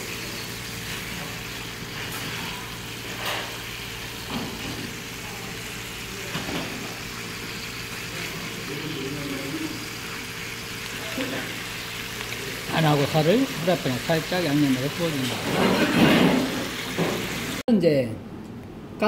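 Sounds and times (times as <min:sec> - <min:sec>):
fish sizzling in a frying pan: 0:00.0 - 0:17.6.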